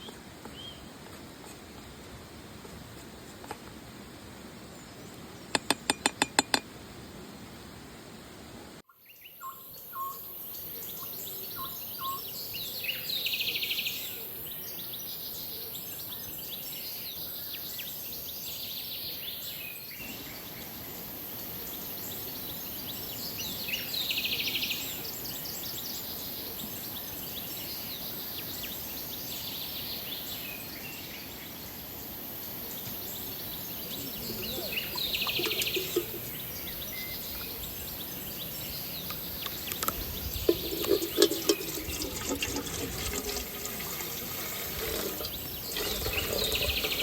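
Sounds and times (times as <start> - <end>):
birds singing: 8.9 - 47.0
flowing water hiss: 16.4 - 47.0.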